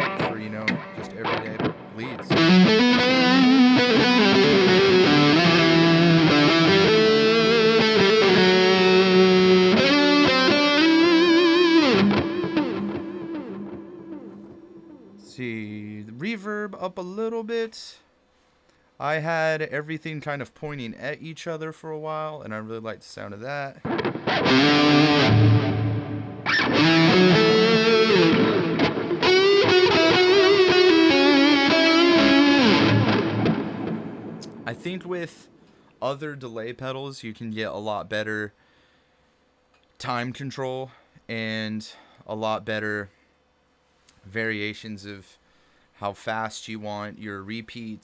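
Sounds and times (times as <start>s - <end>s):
distorted electric guitar lead: 0.0s - 15.3s, 23.8s - 35.1s.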